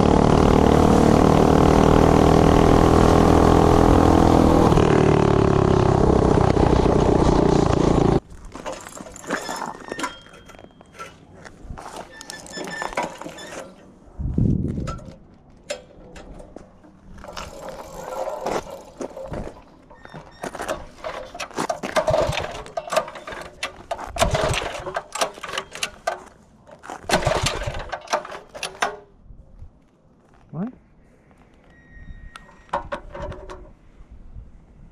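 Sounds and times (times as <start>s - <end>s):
mini bike engine at high revs: 0.0s - 8.2s, 24.2s - 24.7s.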